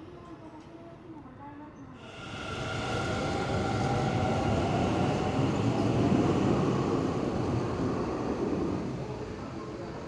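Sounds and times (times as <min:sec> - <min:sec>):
electric train passing: 0:02.0 - 0:10.0.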